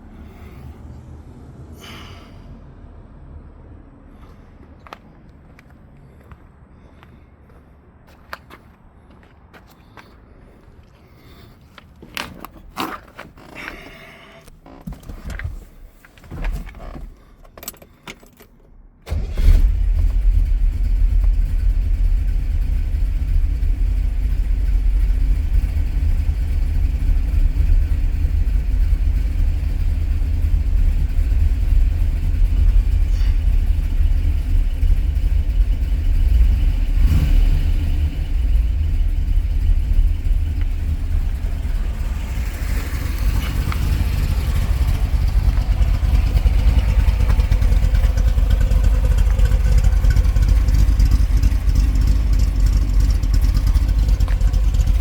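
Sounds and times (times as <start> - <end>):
car engine starting and idling: 12.1 - 55.0.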